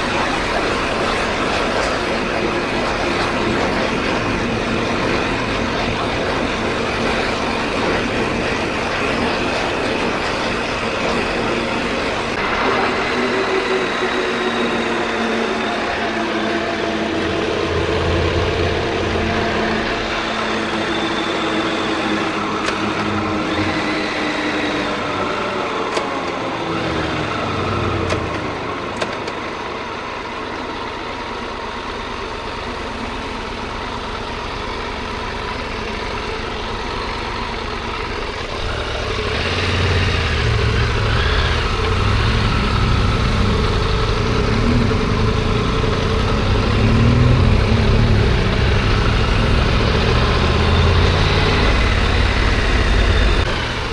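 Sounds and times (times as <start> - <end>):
wind and road noise: 0.0 - 53.9
motorcycle engine running: 29.8 - 53.9.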